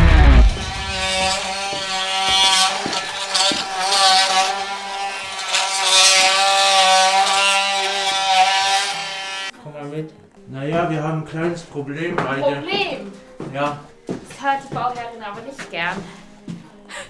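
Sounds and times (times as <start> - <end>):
electric power tool running: 0.0 - 9.5.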